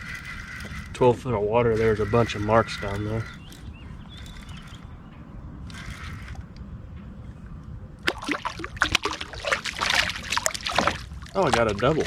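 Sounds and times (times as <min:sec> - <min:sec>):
low steady rumble: 0:00.0 - 0:10.4
water splashing beside a kayak: 0:08.0 - 0:12.0.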